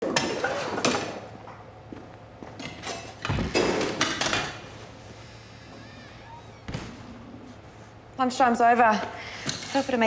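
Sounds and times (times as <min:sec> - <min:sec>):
dishes and pots clattering: 0:02.6 - 0:04.6.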